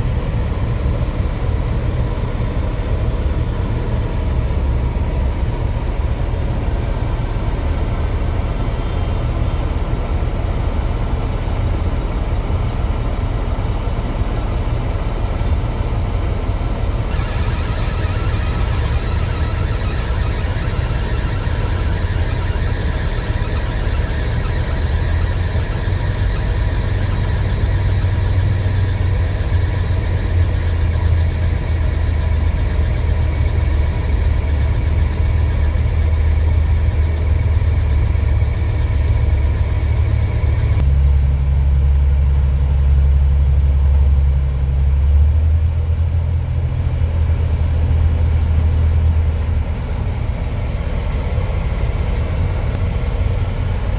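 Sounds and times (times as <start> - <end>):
diesel engine rumbling: 0.0 - 53.9.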